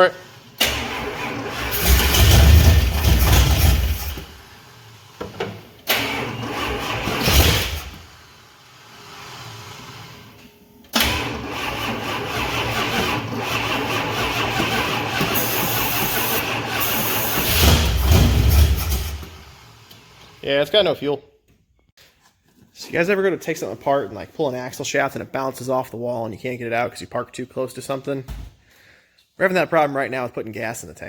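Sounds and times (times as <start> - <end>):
starter cranking engine: 0.6 - 4.4, 5.8 - 8.1, 11.0 - 19.4.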